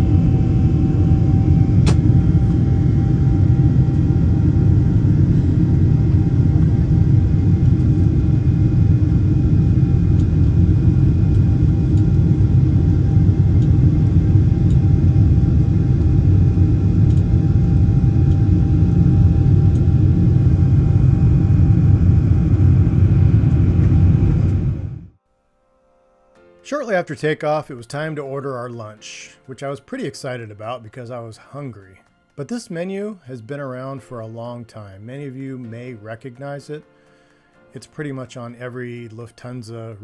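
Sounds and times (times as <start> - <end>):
faint whining tones: 0.0 - 25.2
jet engine rumble: 0.0 - 25.2.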